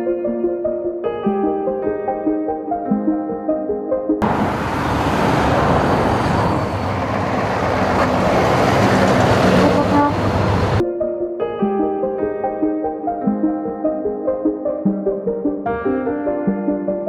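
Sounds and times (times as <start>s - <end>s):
heavy truck engine running: 4.2s - 10.8s.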